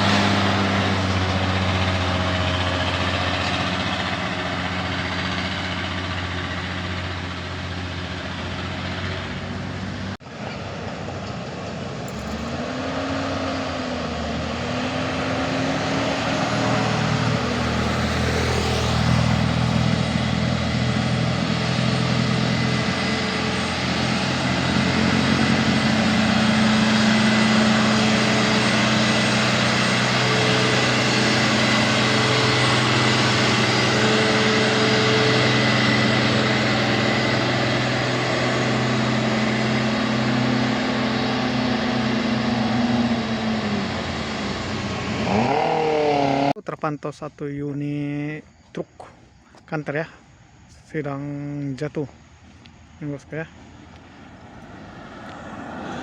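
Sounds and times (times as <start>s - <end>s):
truck engine running: 0.0s - 46.6s, 50.9s - 56.0s
traffic noise: 0.0s - 56.0s.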